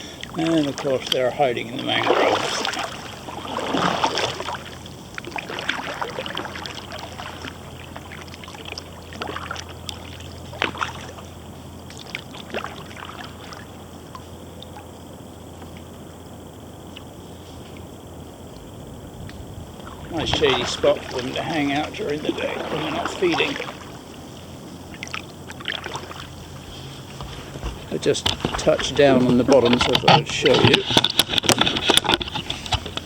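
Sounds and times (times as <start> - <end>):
kayak paddle splashing water: 0.0 - 33.0
small knocks: 27.1 - 33.0.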